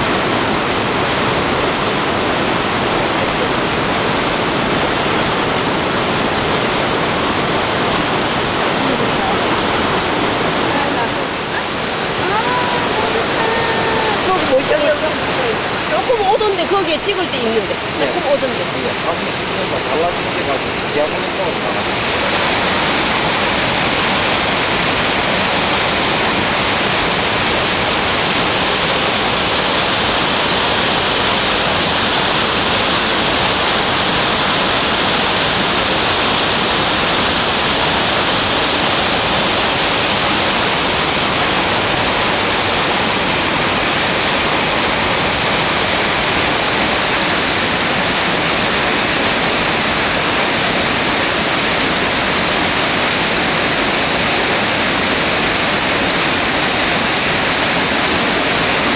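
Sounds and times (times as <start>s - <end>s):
water rushing over rocks: 0.0s - 58.9s.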